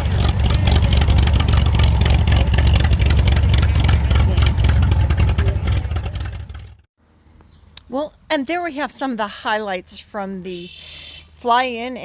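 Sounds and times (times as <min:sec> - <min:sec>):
engine running loudly: 0:00.0 - 0:06.9.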